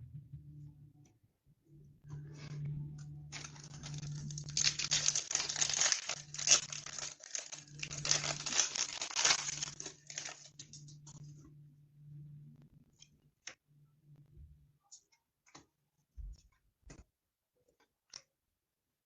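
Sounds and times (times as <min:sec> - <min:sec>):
low steady hum: 0:00.0 - 0:14.8
wrappers crinkling and tearing: 0:03.3 - 0:11.2.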